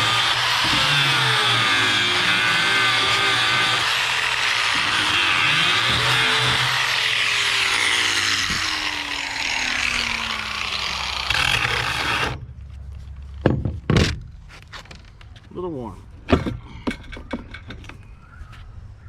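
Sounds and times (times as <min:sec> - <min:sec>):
angle grinder grinding metal: 0:00.0 - 0:12.4.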